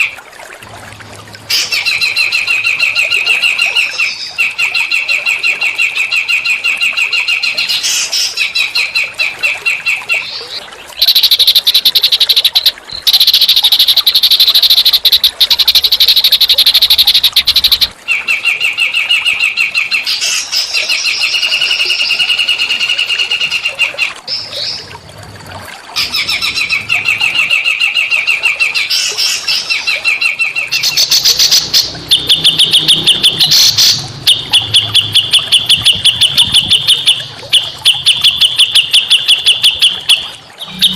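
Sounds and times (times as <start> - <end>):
songbirds fast rattling trills: 10.4 - 17.9.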